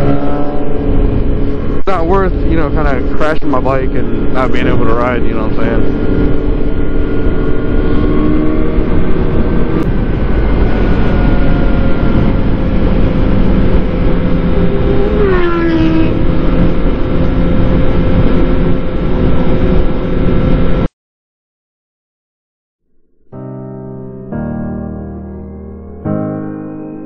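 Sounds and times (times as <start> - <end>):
motorcycle engine running: 0.0 - 20.9
wind noise on microphone: 0.0 - 20.9.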